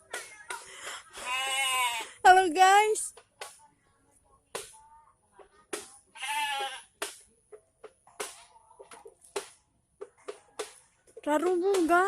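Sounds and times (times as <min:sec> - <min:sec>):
goat bleating: 0:01.2 - 0:02.1, 0:06.1 - 0:06.9.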